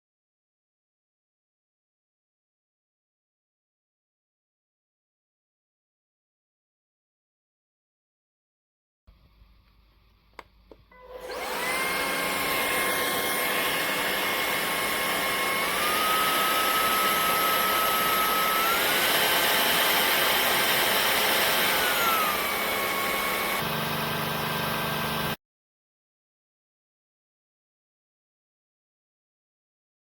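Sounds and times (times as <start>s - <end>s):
vacuum motor whine: 10.7s - 25.4s.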